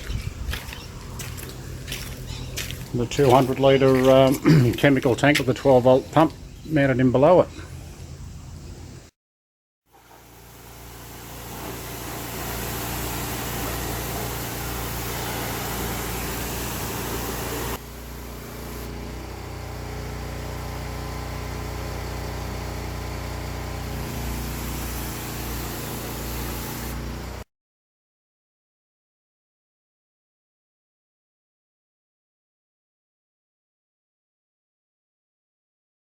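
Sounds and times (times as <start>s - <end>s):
water blaster engine hum: 9.9s - 27.4s
strong water hiss: 10.0s - 18.9s, 24.0s - 27.1s.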